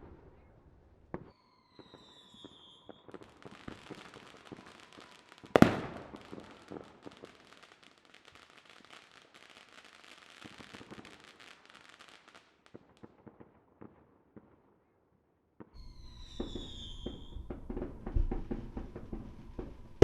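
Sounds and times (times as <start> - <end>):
whistling firework: 0.0 - 14.5, 15.6 - 20.0
firework crackling pops: 1.1 - 14.6, 15.6 - 20.0
heavy firework booms: 5.6 - 6.9.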